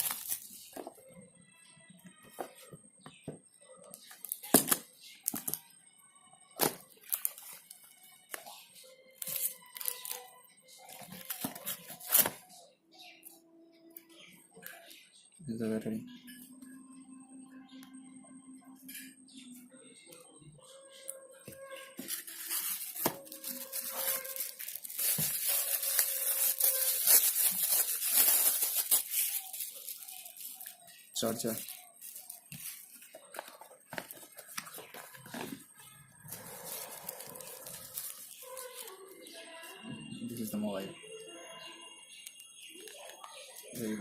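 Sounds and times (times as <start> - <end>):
packaging tearing and crinkling: 0.0 - 0.7, 6.6 - 7.8, 9.2 - 12.4, 22.0 - 35.6, 36.3 - 39.1.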